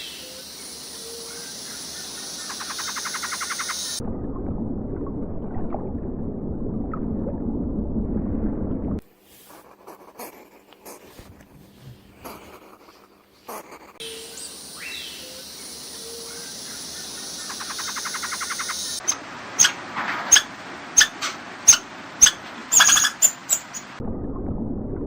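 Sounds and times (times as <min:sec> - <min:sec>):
bird calls: 0:00.0 - 0:04.0, 0:11.8 - 0:24.0.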